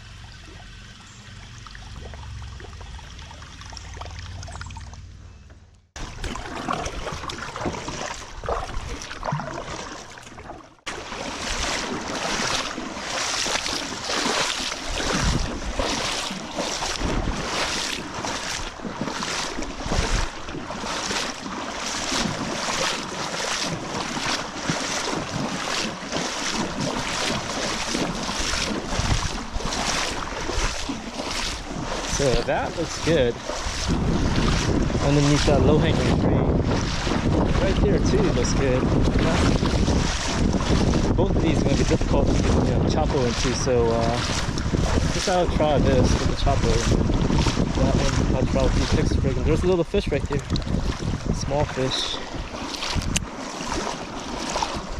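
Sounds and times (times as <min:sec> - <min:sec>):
water rushing and splashing: 0:00.0 - 0:05.1, 0:06.0 - 0:54.9
wind buffeting microphone: 0:13.5 - 0:54.9.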